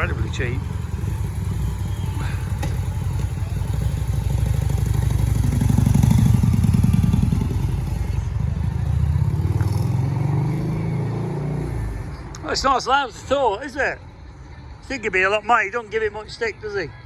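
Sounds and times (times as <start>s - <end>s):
motorcycle engine low rumble: 0.0s - 12.8s.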